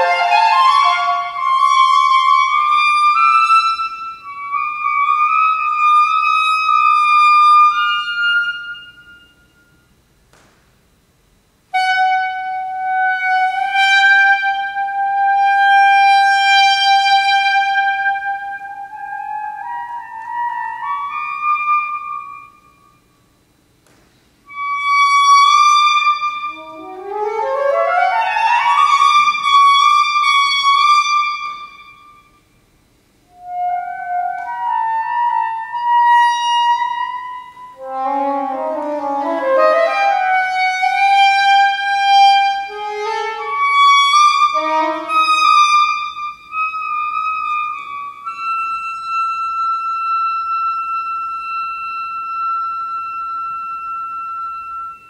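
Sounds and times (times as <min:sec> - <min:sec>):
solo saxophone playing: 0:11.7 - 0:22.5, 0:26.2 - 0:30.3, 0:33.3 - 0:55.0.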